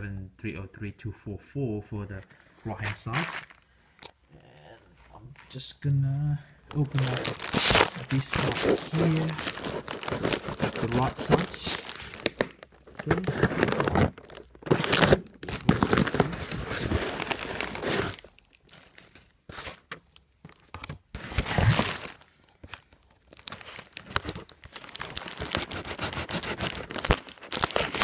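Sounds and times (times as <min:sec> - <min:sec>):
packaging tearing and crinkling: 0:02.8 - 0:04.2, 0:06.7 - 0:28.0.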